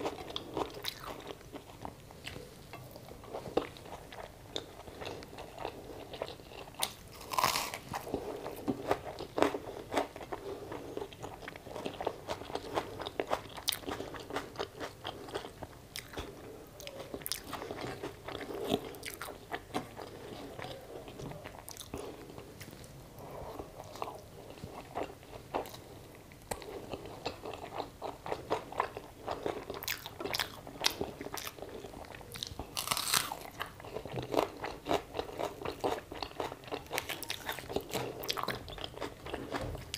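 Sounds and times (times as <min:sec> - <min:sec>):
chewing with wet mouth sounds: 0:00.0 - 0:22.9, 0:23.5 - 0:39.9
crisp bites crunching: 0:06.8 - 0:08.1, 0:32.7 - 0:33.6.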